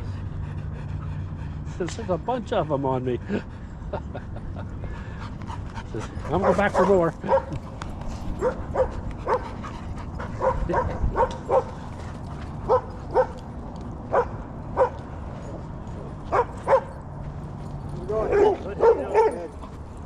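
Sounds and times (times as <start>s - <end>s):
dog barking: 6.3s - 7.6s, 8.4s - 9.4s, 10.4s - 11.7s, 12.7s - 13.4s, 14.1s - 15.0s, 16.3s - 17.0s, 18.2s - 19.5s.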